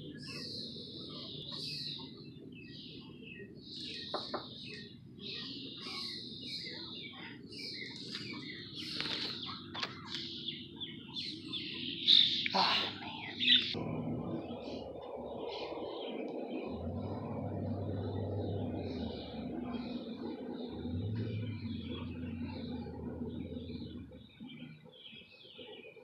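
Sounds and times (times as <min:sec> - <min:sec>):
birds chirping: 0:00.0 - 0:26.0
low background rumble: 0:13.0 - 0:25.8.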